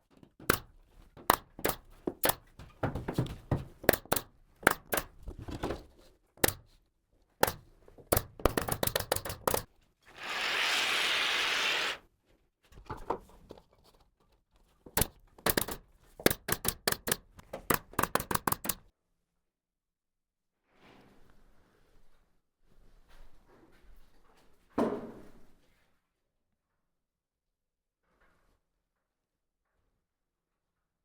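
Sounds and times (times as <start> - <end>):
sharp knocks and clicks: 0.4 - 5.8, 6.4 - 6.7, 7.4 - 9.7, 14.9 - 18.9.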